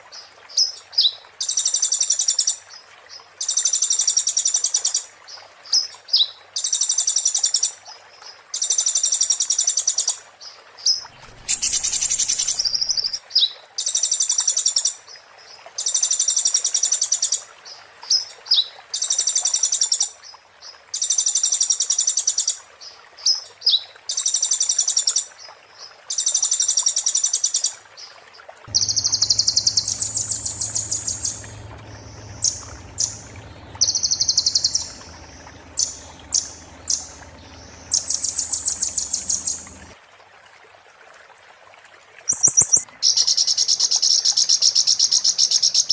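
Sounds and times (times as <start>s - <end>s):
bird singing rattling phrases: 11.0s - 13.2s, 28.7s - 40.0s
low steady hum: 11.0s - 13.2s, 28.7s - 40.0s.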